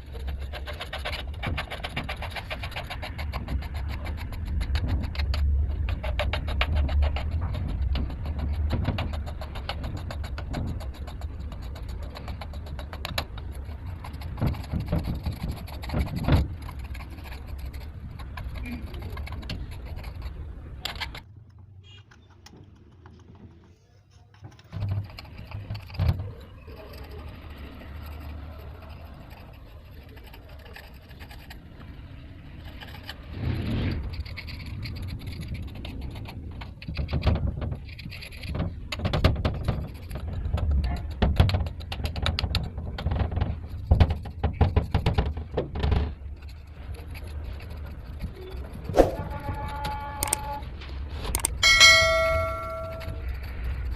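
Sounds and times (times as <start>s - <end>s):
brush scraping and scrubbing: 46.2s - 49.6s
low hum: 51.6s - 53.5s.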